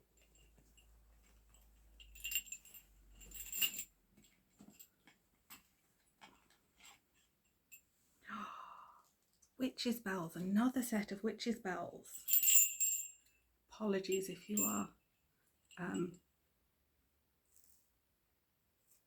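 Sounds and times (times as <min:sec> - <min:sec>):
small metal bells jingling: 0:00.0 - 0:04.9, 0:12.0 - 0:13.4, 0:14.1 - 0:15.0, 0:15.7 - 0:16.2.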